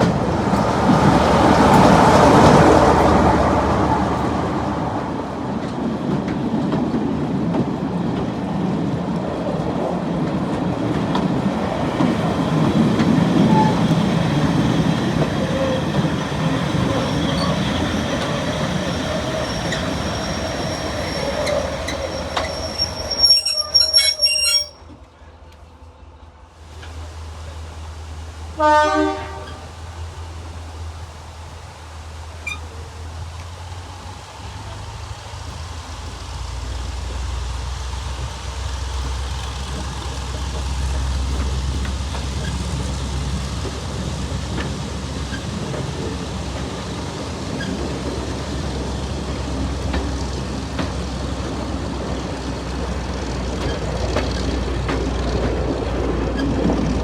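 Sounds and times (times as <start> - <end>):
diesel locomotive drone: 0.0 - 57.0
train running noise: 0.0 - 57.0
locomotive horn blast: 28.5 - 29.7.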